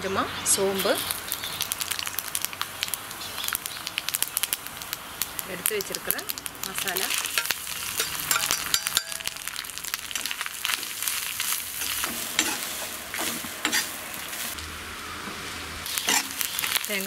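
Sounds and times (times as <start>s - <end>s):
coconut frying in oil: 0.2s - 17.0s
steel spoon scraping and stirring: 7.1s - 14.6s, 15.9s - 16.9s.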